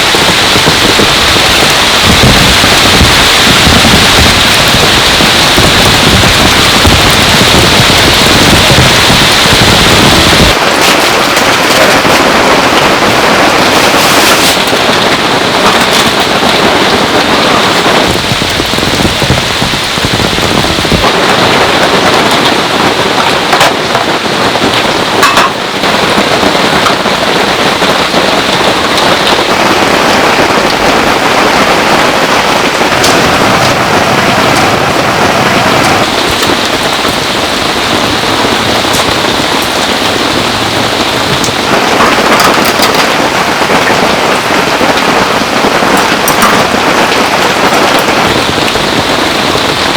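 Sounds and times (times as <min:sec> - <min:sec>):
deep rumble: 0:00.0 - 0:10.6, 0:14.7 - 0:25.2, 0:28.4 - 0:44.9
heavy rain: 0:00.0 - 0:49.9.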